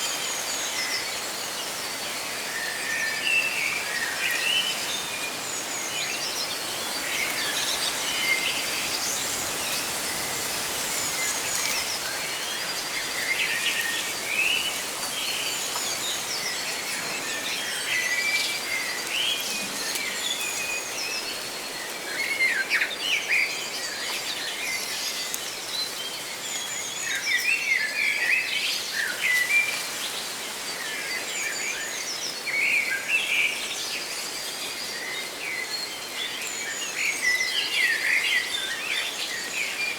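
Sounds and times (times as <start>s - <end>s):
leaves rustling in wind: 0.0s - 39.9s.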